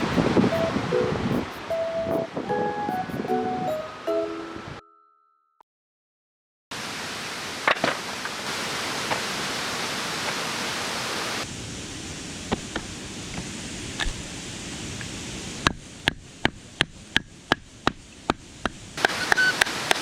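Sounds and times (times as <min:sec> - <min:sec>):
steady rushing outdoor noise: 0:00.0 - 0:03.4.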